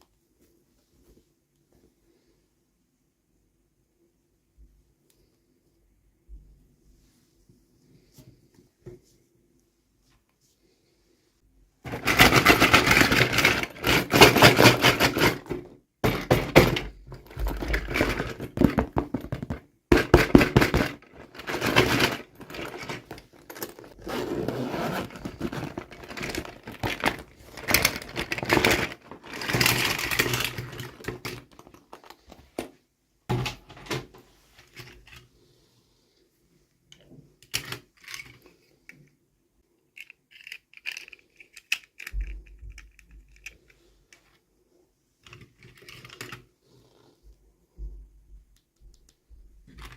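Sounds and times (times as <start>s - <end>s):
toy packaging crinkling: 40.0s - 42.1s.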